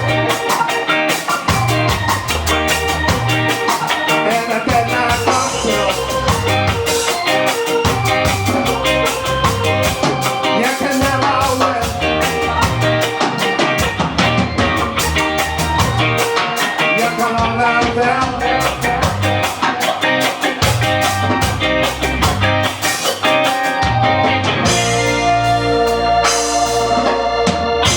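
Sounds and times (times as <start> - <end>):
live ska band playing: 0.0 - 27.9
person singing: 4.1 - 6.6, 10.3 - 13.2, 16.3 - 19.6.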